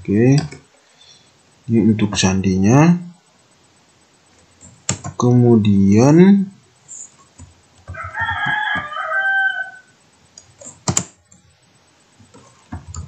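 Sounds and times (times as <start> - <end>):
keyboard typing: 4.6 - 5.2, 7.1 - 8.9, 10.3 - 11.5, 12.2 - 13.0.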